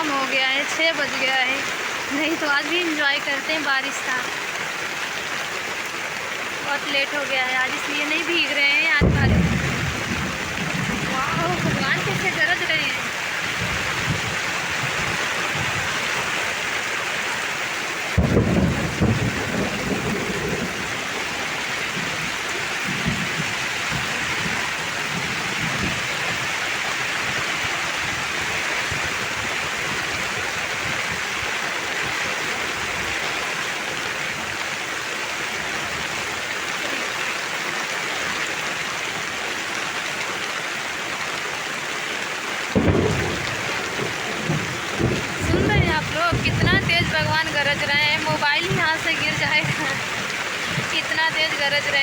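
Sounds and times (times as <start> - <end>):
heavy rain: 0.0 - 52.0
thunderclap: 8.9 - 16.2, 18.1 - 26.5, 42.7 - 52.0
rolls of thunder: 9.0 - 12.7, 18.2 - 26.1, 42.8 - 48.8.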